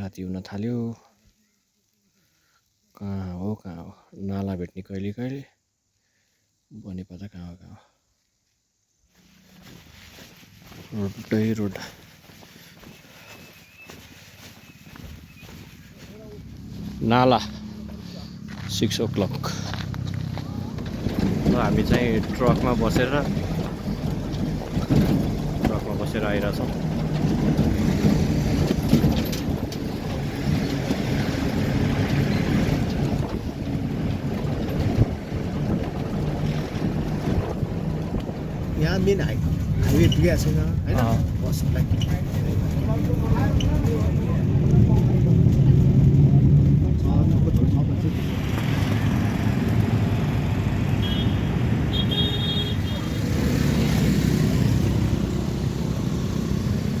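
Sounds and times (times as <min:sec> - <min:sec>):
truck engine and road rumble: 0:09.1 - 0:57.0
wind buffeting microphone: 0:20.6 - 0:50.6.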